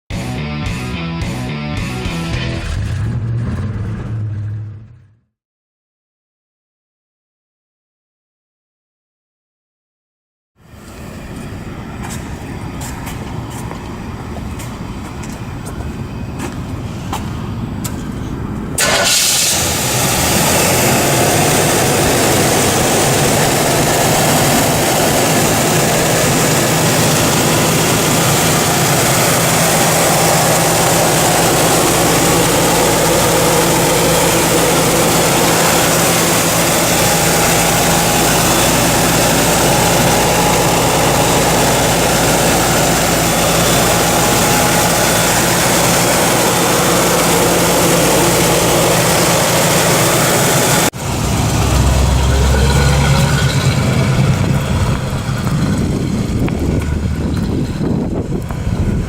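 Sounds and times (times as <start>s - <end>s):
car engine idling: 10.9s - 59.0s.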